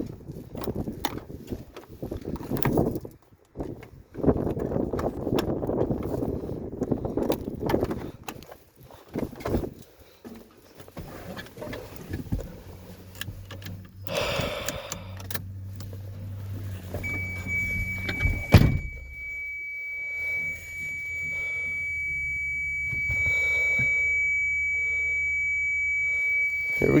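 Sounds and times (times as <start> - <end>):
low steady hum: 12.5 - 27.0
high-pitched warning tone: 17.0 - 27.0.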